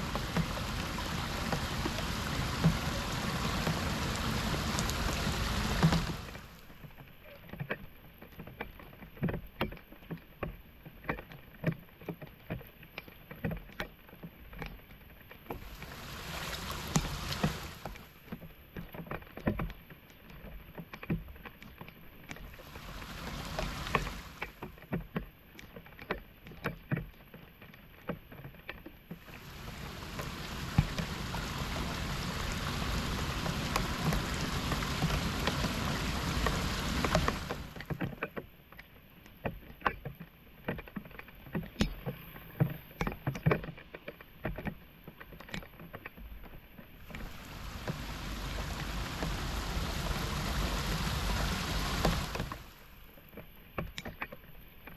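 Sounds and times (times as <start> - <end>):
floodwater splashing: 0.0 - 6.8, 15.6 - 18.3, 22.5 - 24.7, 29.2 - 38.0, 47.0 - 53.4
water rushing: 0.0 - 6.8, 15.6 - 18.2, 22.5 - 24.7, 29.2 - 38.0, 47.0 - 53.3.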